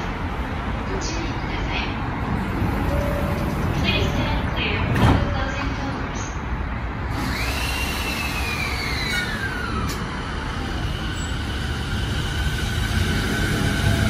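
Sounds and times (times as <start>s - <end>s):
wheels rumbling on rail: 0.0s - 14.0s
traction motor whine: 7.1s - 14.0s.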